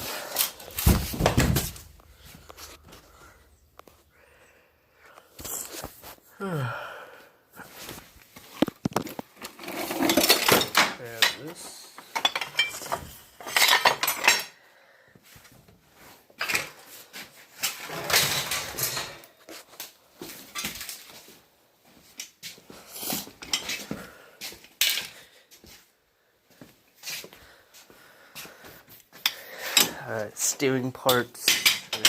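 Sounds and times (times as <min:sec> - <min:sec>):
scrap metal clanking: 0:09.4 - 0:14.4, 0:17.7 - 0:19.3.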